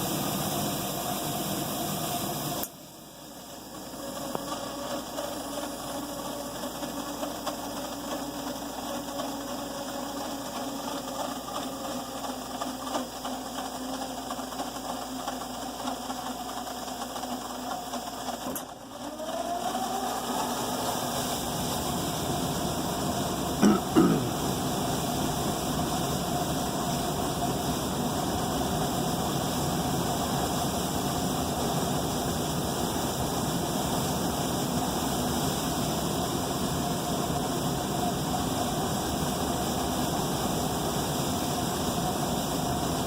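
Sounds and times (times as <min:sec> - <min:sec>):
furnace humming with rattling buzz: 0:00.0 - 0:43.0.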